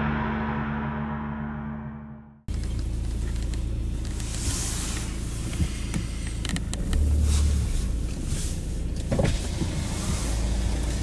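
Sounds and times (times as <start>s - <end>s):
car engine idling: 2.5s - 11.0s.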